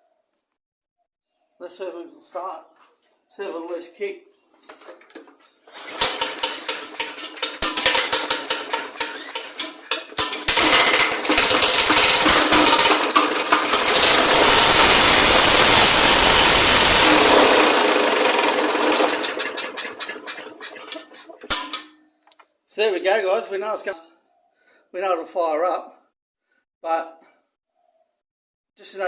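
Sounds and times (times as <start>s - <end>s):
lawn mower engine: 5.7s - 21.9s.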